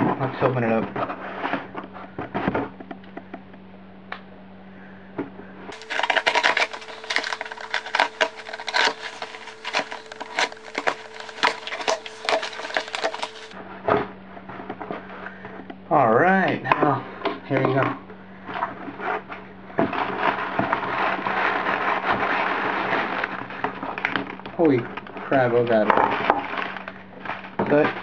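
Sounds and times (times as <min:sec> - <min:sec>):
cardboard and paper tearing: 0:05.7 - 0:13.6.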